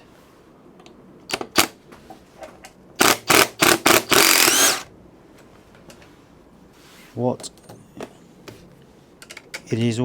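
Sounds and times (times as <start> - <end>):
cordless power driver whirring: 3.0 - 4.9.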